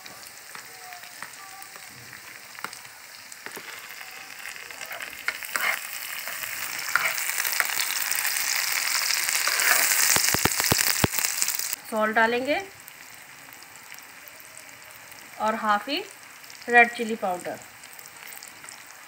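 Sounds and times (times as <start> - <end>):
vegetables sizzling in hot oil: 0.0 - 19.0
spoon scraping pan: 4.8 - 10.9.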